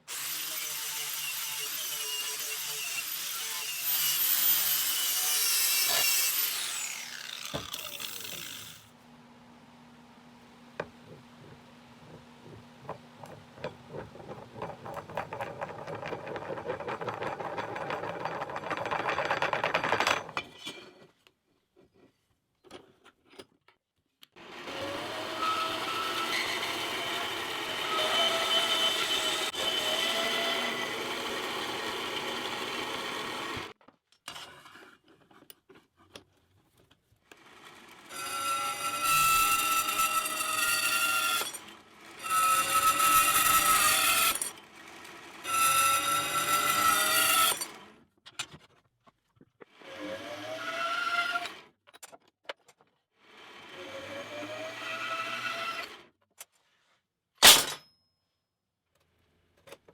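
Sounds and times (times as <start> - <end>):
power tool working metal: 0.1 - 8.9, 24.4 - 33.8, 37.9 - 47.8.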